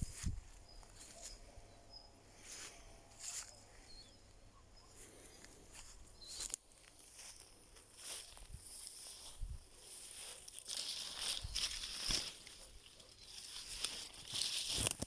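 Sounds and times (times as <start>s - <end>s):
footsteps in dry leaves: 0.0s - 1.4s, 2.4s - 3.7s, 4.9s - 15.0s
faint high bird chirps: 0.0s - 6.7s, 10.9s - 14.1s.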